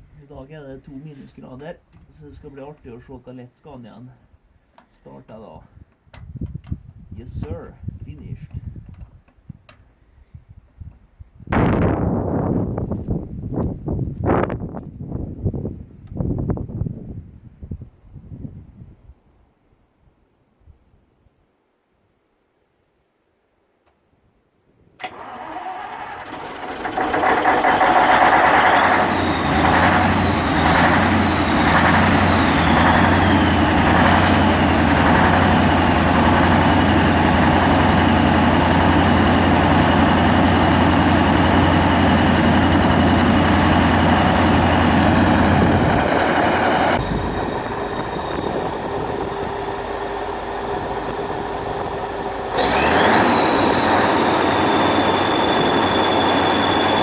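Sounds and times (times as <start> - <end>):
diesel engine starting and running: 25.0 - 57.0
sliding whistling tones: 28.2 - 36.5, 52.6 - 57.0.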